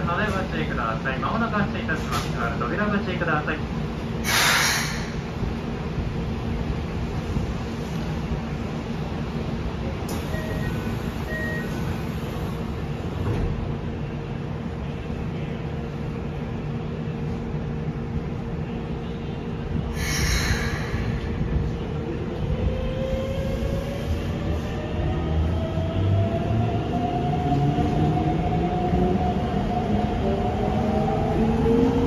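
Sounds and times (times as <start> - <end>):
train interior hum: 0.0 - 32.0
air hiss: 4.2 - 5.2.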